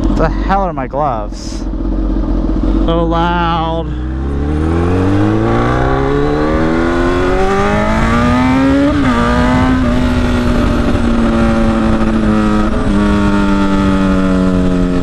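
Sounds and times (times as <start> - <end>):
loud motorcycle exhaust revving: 1.6 - 15.0.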